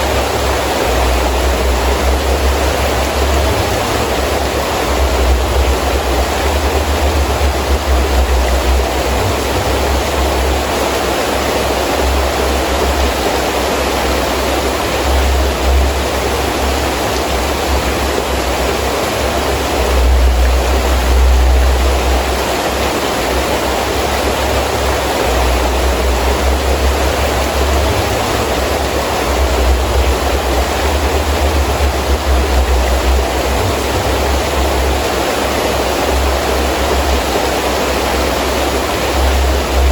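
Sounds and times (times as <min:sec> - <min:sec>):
low rumble: 0:00.0 - 0:10.8, 0:15.0 - 0:22.6, 0:23.3 - 0:35.4
heavy rain: 0:00.0 - 0:39.9
wind: 0:00.0 - 0:39.9.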